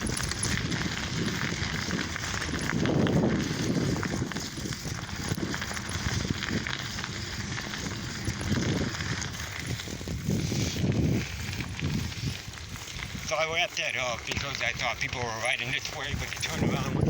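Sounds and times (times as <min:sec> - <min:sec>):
bicycle knocks and rattles: 0:00.0 - 0:13.3
wind buffeting microphone: 0:00.0 - 0:17.0.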